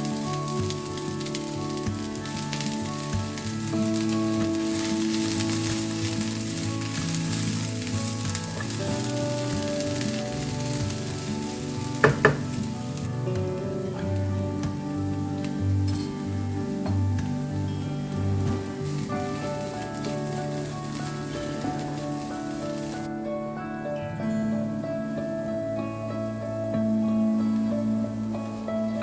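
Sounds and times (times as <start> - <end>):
background music: 0.0 - 29.0
food sizzling in a pan: 0.0 - 29.0
utensil knocking on pan: 12.0 - 12.7.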